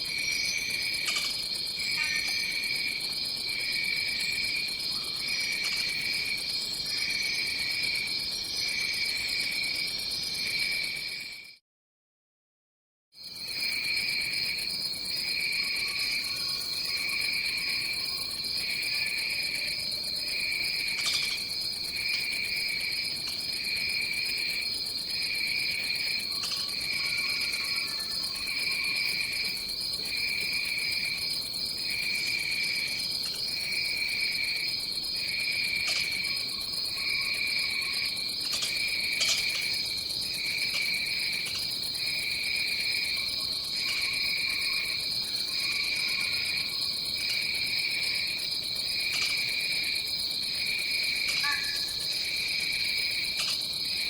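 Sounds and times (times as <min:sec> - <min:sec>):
insect high-pitched drone: 0:15.1 - 0:54.0
insect pulsing trill: 0:50.7 - 0:54.0.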